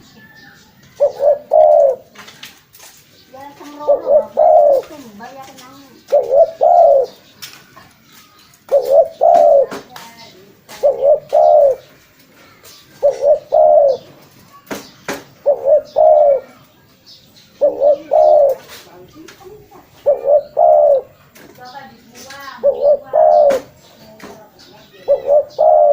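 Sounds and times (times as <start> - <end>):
dove cooing: 0.8 - 2.3, 3.4 - 7.2, 8.7 - 12.0, 12.6 - 14.2, 15.4 - 16.6, 17.6 - 21.3, 21.9 - 25.9.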